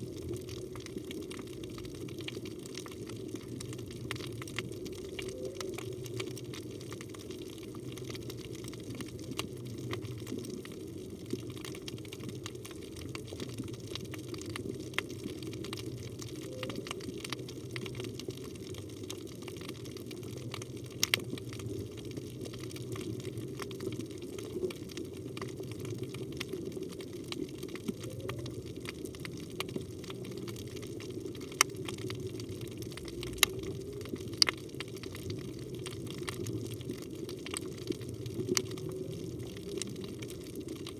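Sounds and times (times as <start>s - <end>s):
underwater moving water murmur: 0.0s - 40.9s
sharp underwater clicks: 32.9s - 36.5s.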